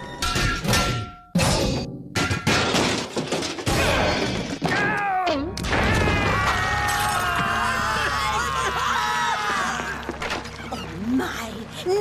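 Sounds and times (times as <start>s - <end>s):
cartoon crashes and thuds: 5.6s - 6.7s.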